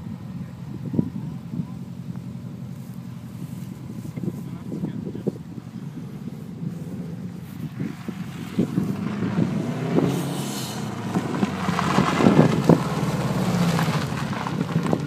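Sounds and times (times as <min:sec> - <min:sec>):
rally car engine revving on gravel: 0:02.0 - 0:15.0
sharp engine cracks and crackles: 0:07.3 - 0:15.0.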